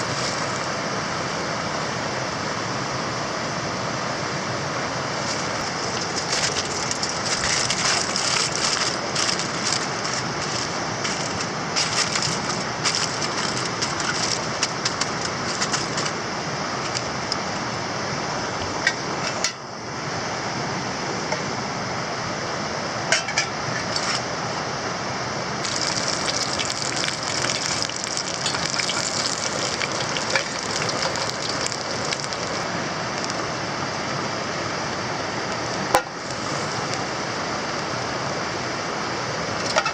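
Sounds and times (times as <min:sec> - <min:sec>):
steady rushing noise: 0:00.0 - 0:20.1
campfire crackling and popping: 0:05.4 - 0:16.0, 0:25.6 - 0:33.4.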